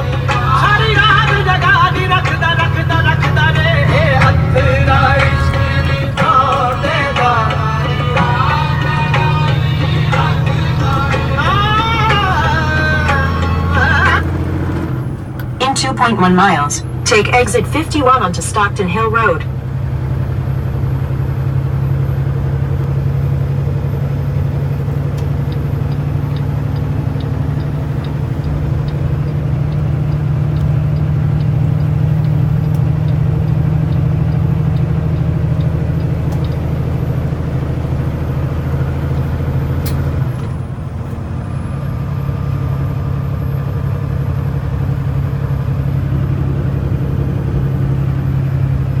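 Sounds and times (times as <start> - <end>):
truck engine and road drone: 0.0 - 49.0
light ticking: 24.4 - 40.5.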